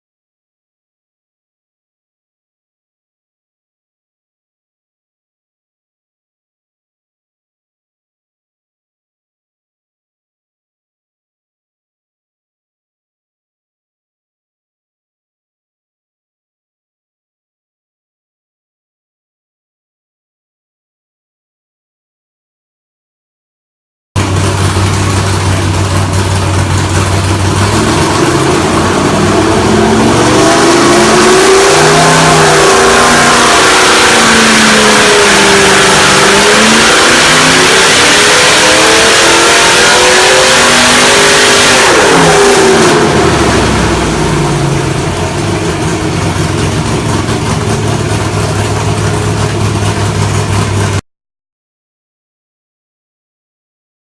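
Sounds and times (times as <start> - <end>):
engine idling and revving: 24.2 - 51.0.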